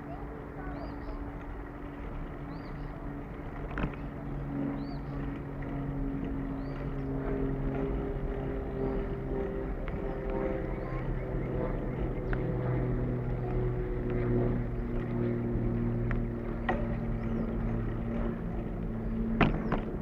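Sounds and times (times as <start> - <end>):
engine drone: 0.0 - 20.0
low wind: 0.0 - 20.0.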